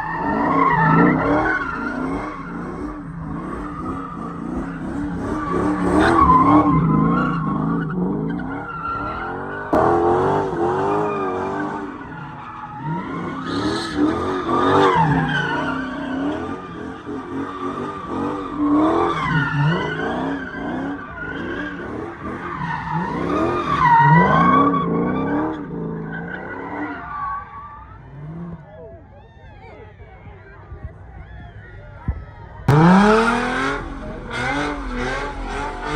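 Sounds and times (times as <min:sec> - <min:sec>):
engine revving: 0:00.0 - 0:12.0, 0:32.7 - 0:35.9
car tyres squealing: 0:00.0 - 0:29.8, 0:31.0 - 0:35.9.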